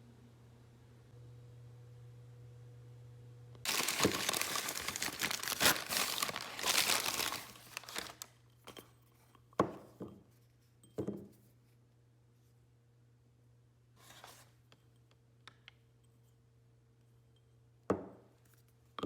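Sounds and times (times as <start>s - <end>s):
wrapping crinkling and rustling: 3.7s - 8.4s.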